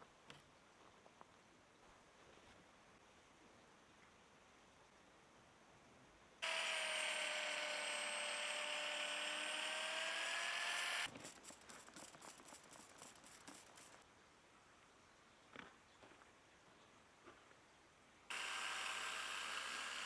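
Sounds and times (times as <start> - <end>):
power tool motor running: 6.4 - 14.0, 18.3 - 20.0.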